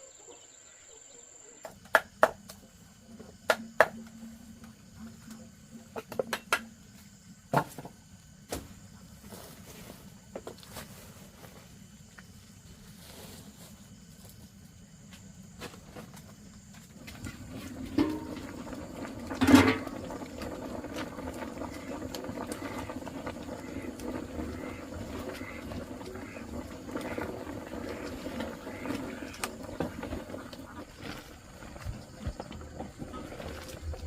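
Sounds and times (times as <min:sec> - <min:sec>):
animal noises: 0:00.0 - 0:06.1, 0:20.0 - 0:34.0.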